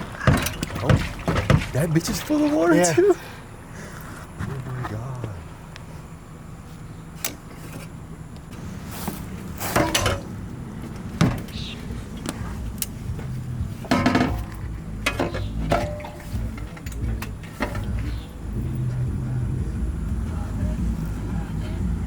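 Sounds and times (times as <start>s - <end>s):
metal exhaust pipe clanking: 0.0s - 3.1s, 7.2s - 22.0s
low rumble: 8.5s - 22.0s.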